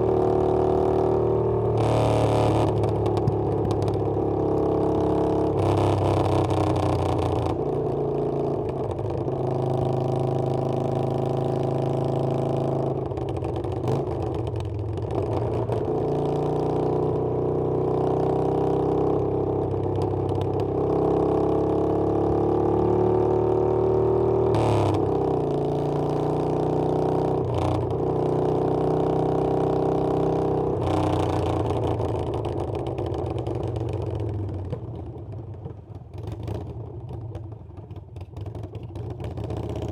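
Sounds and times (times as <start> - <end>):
motorcycle engine accelerating: 0.0 - 8.5, 20.6 - 36.8.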